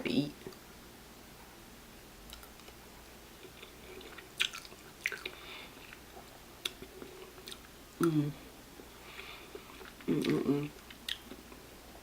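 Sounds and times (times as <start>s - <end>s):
person chewing noodles: 3.4s - 8.2s, 8.8s - 11.7s.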